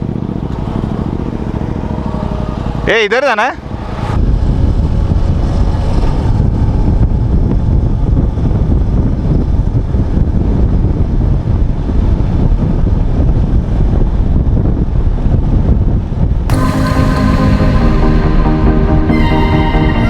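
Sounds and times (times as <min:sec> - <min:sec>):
wind buffeting microphone: 0:04.1 - 0:16.5.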